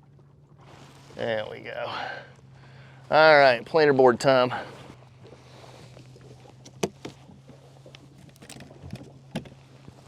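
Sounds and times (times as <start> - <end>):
low steady hum: 1.4 - 10.0
fishing gear clicking and knocking: 8.2 - 9.1.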